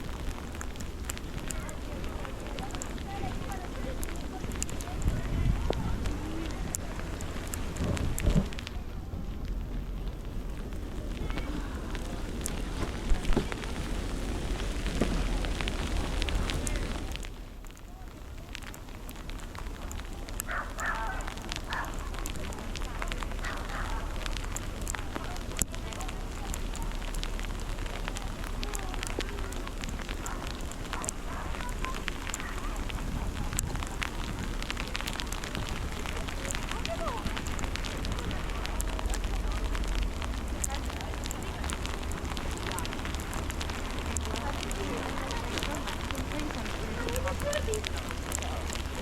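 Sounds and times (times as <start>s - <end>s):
snowstorm rushing noise: 0.0s - 17.5s
crackling hiss: 0.0s - 49.0s
faint distant voices: 0.0s - 49.0s
scattered clicks: 0.0s - 49.0s
wind rumble on microphone: 0.0s - 49.0s.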